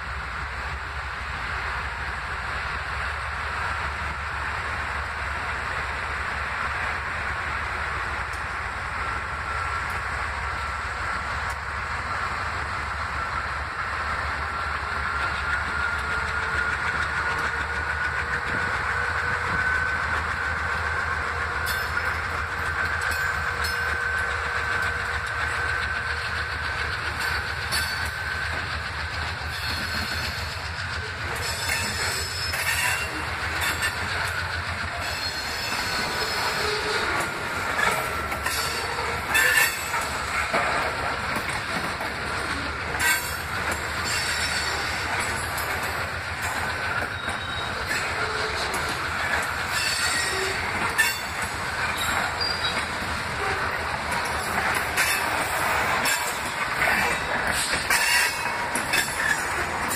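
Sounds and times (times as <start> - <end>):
freight train rumble: 0.0 - 59.9
wheels clacking over rail joints: 11.2 - 59.9
high wheel squeal: 29.4 - 41.1, 42.3 - 59.9.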